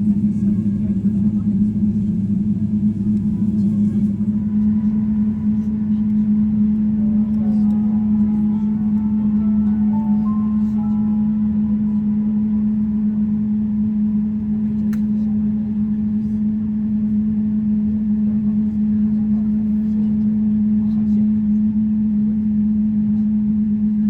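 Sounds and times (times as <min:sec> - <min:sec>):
airplane cabin hum: 0:00.0 - 0:23.7.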